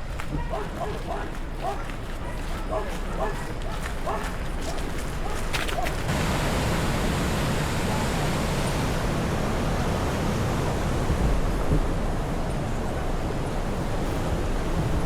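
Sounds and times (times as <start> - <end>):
wind: 0.0 - 15.0
surf rushing: 6.0 - 15.0.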